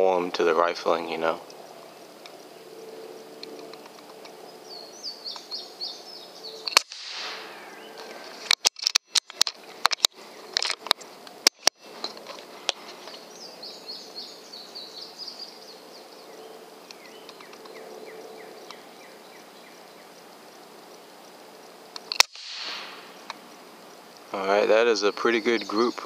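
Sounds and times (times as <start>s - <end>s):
songbird chirping: 0.0s - 26.0s
sharp crack: 6.7s - 7.7s, 22.0s - 23.4s
sharp clicks: 21.9s - 23.4s.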